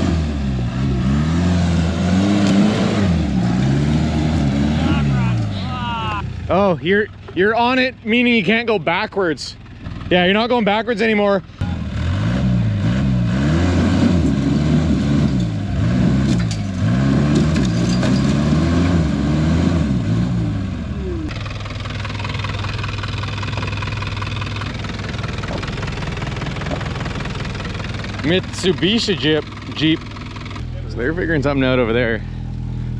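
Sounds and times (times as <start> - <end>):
engine revving under load: 0.0 - 6.7, 11.6 - 32.9
engine idling: 4.7 - 12.0, 20.8 - 32.9.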